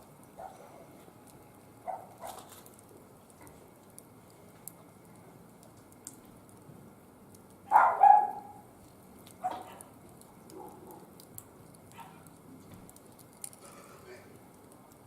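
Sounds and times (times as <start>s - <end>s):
wood fire crackling: 0.0s - 15.0s
dog barking: 0.4s - 0.7s, 1.9s - 2.4s, 7.7s - 8.6s, 9.4s - 9.9s, 10.5s - 11.1s, 11.9s - 12.2s.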